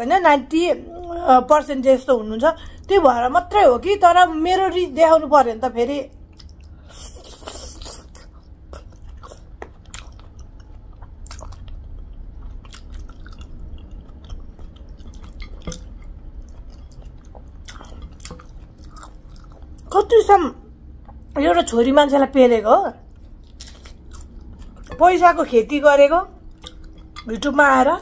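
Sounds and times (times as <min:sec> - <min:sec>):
person chewing with wet smacks: 0:06.1 - 0:20.0, 0:20.9 - 0:21.4, 0:23.0 - 0:25.0, 0:26.4 - 0:27.5.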